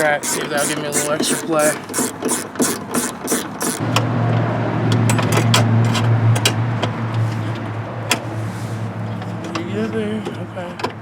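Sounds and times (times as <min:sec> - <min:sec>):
socket ratchet clicking: 0:00.0 - 0:03.9.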